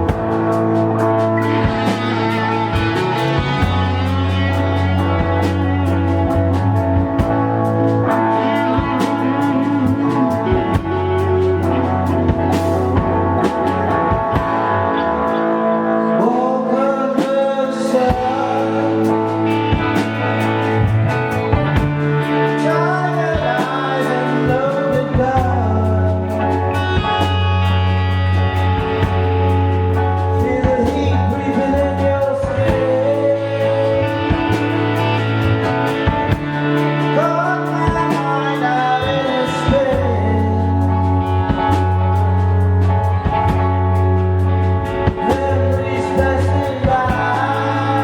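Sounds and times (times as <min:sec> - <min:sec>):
acoustic guitar band music: 0:00.0 - 0:48.0
wavering lead melody: 0:00.0 - 0:48.0.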